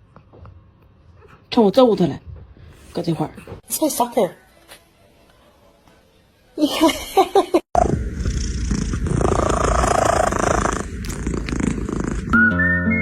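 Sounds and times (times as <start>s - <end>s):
cat purring loudly: 7.8s - 12.4s
music with steady notes: 12.4s - 13.0s.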